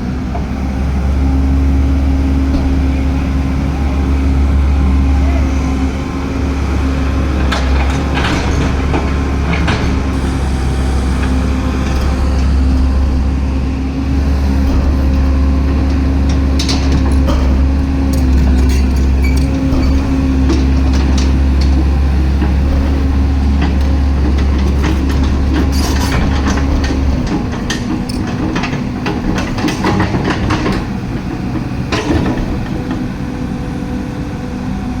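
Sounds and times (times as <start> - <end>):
diesel engine rumbling: 0.0 - 35.0
metallic clanks: 11.1 - 33.0.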